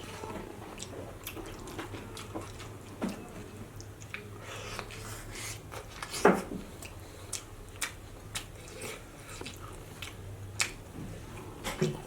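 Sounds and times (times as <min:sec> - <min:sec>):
chewing and wet mouth smacks: 0:06.8 - 0:10.8.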